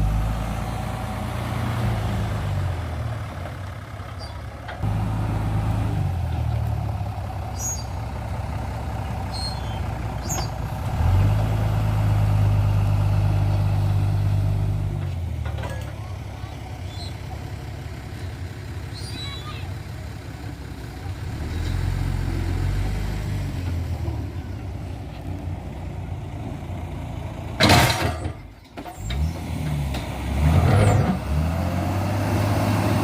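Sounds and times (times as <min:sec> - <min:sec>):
diesel truck engine under load: 0:00.0 - 0:33.0.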